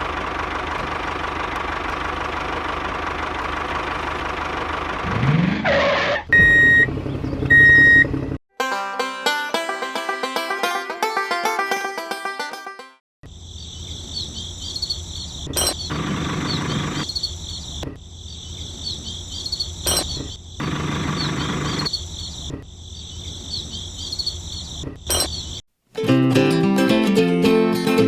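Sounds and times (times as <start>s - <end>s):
insects chirping: 13.2s - 25.6s.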